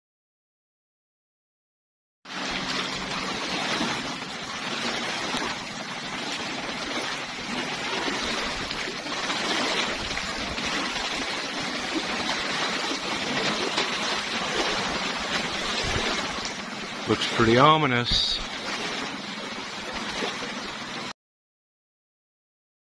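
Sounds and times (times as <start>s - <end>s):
sea at the shoreline: 2.2s - 21.2s
wind: 2.3s - 21.1s
wind buffeting microphone: 2.6s - 16.8s.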